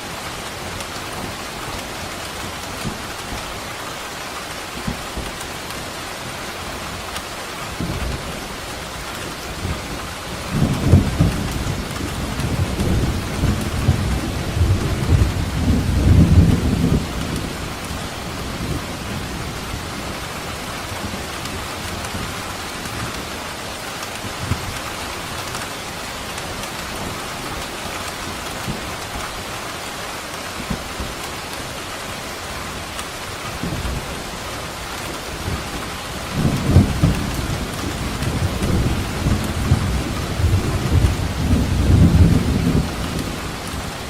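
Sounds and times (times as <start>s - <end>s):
steady rain falling: 0.0s - 44.0s
thunder rolling: 10.5s - 17.6s, 35.4s - 44.0s.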